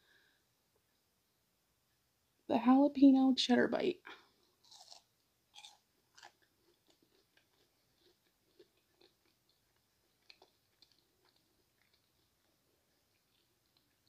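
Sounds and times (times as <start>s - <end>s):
faint chewing with soft crunches: 4.1s - 14.0s.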